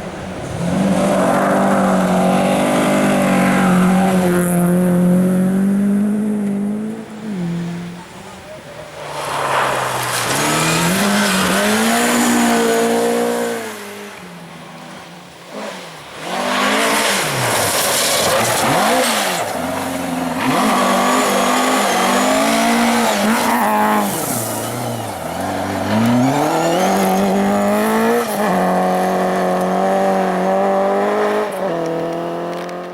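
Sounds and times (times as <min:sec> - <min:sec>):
car engine revving: 0:00.4 - 0:08.1, 0:15.5 - 0:32.9.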